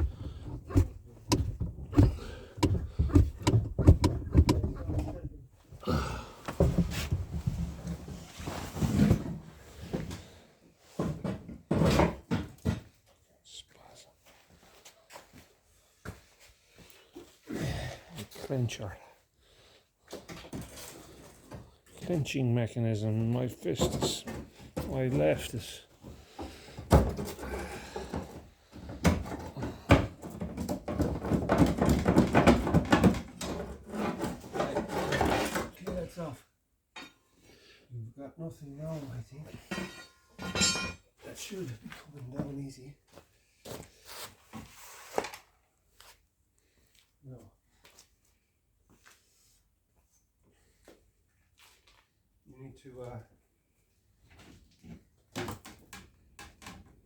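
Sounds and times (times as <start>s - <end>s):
metal parts and tools clunking: 0.0s - 5.4s, 39.6s - 41.1s
clattering and scraping: 0.0s - 5.5s, 26.4s - 35.9s, 39.5s - 41.0s
sharp knocks of tools: 39.7s - 41.0s.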